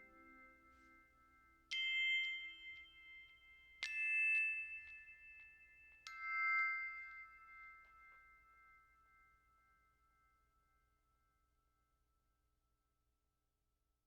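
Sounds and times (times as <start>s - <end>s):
slow chime notes ringing: 0.0s - 10.2s.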